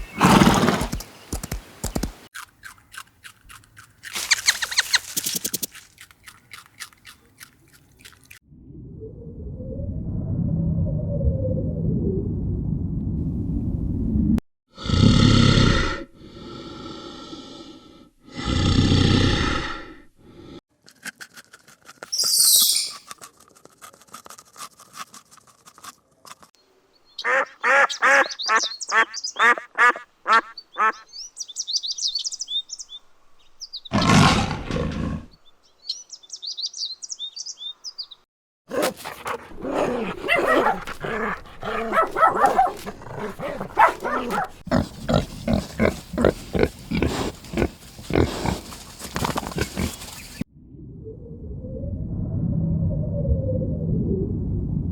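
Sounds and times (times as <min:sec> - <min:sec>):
high chirps: 0:04.2 - 0:05.7, 0:22.1 - 0:23.1
high squeal: 0:22.1 - 0:23.1
dense rapid animal calling: 0:38.7 - 0:50.4.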